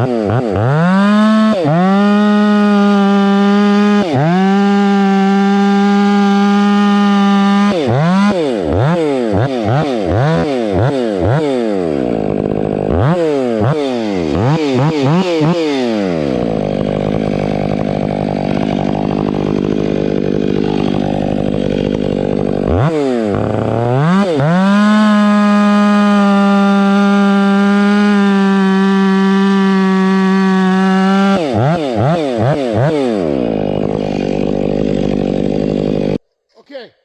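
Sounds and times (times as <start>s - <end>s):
chainsaw cutting through log: 0.0s - 36.2s
chainsaw revving: 0.0s - 36.2s.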